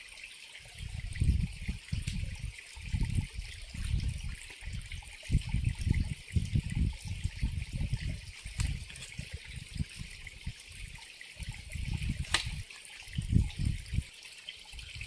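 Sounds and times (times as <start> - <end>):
water trickling: 0.0 - 15.0
sharp click: 12.3 - 12.6.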